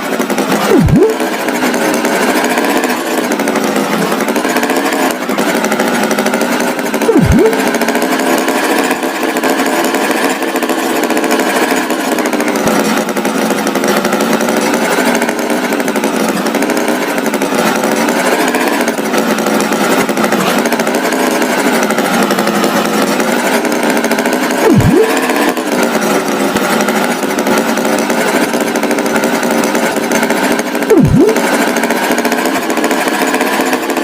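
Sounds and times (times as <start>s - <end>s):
cartoon tractor engine buzzing: 0.0s - 34.0s
quick swooping tone: 0.7s - 1.2s, 7.1s - 7.8s, 24.6s - 25.4s, 30.9s - 31.4s.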